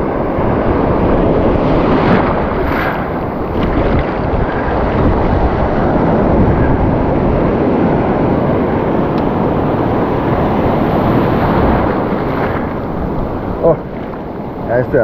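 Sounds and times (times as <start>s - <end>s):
surf breaking: 0.0s - 15.0s
wind on microphone: 0.0s - 15.0s.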